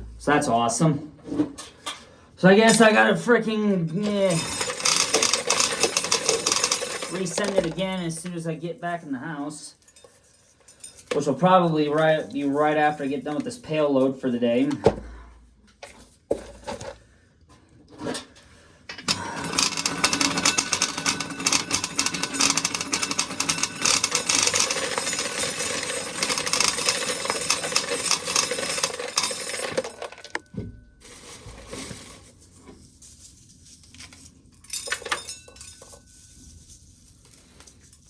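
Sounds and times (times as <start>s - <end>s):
corn kernels rattling into pail: 4.0s - 8.4s, 19.1s - 30.4s.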